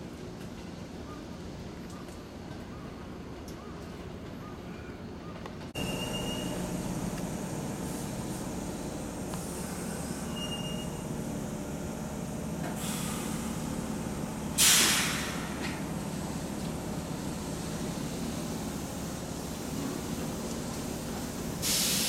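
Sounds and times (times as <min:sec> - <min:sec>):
train rumbling: 0:00.0 - 0:22.0
high brake squeals: 0:05.8 - 0:06.8, 0:09.6 - 0:11.2
air brakes hissing: 0:05.8 - 0:22.0.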